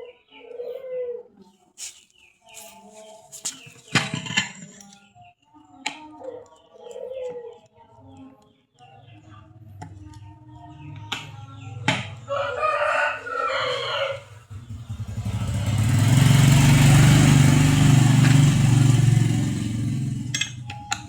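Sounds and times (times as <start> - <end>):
rooster crowing: 12.3 - 14.5.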